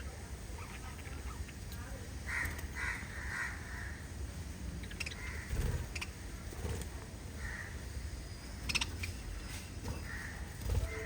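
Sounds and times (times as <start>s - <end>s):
parrots chirping: 0.5s - 1.7s, 4.8s - 6.4s, 7.4s - 11.0s.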